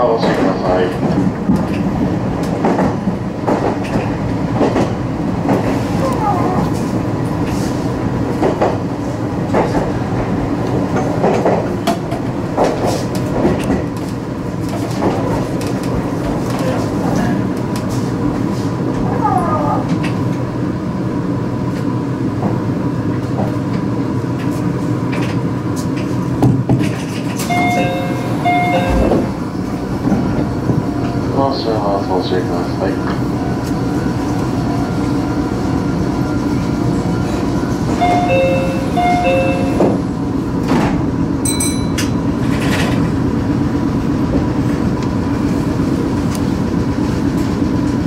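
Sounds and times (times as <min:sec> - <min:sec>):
train wheels clicking over rail joints: 0:00.1 - 0:05.8, 0:07.3 - 0:16.6, 0:23.3 - 0:31.2, 0:41.8 - 0:43.2
level-crossing warning bell: 0:27.4 - 0:29.6, 0:37.1 - 0:40.2, 0:41.4 - 0:42.4.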